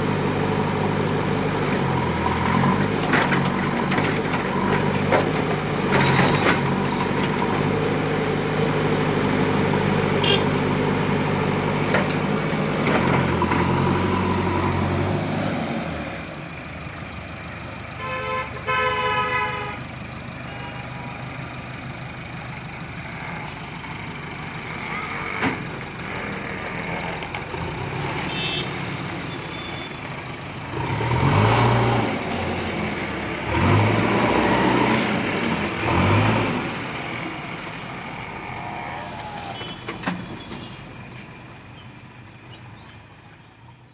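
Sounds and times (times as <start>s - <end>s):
heavy diesel engine running: 0.0s - 43.6s
vehicle horn: 10.2s - 10.6s, 18.0s - 19.8s, 20.4s - 21.1s, 28.2s - 29.9s, 39.4s - 40.9s.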